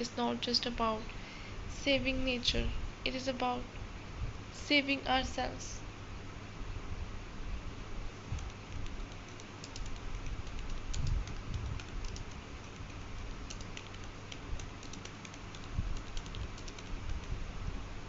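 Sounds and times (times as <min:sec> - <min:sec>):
keyboard key clicks: 0:08.4 - 0:17.4.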